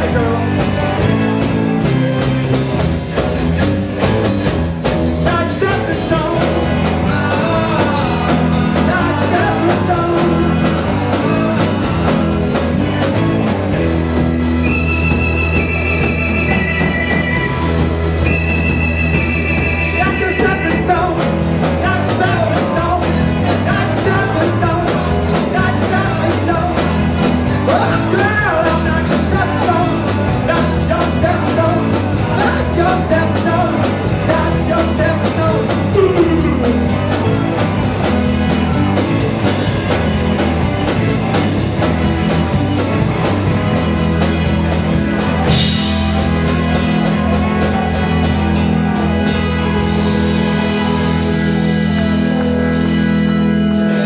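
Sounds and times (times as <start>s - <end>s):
drum kit beat: 0.0s - 54.0s
live rock band playing: 0.0s - 54.0s
melodic lead lines: 0.0s - 54.0s.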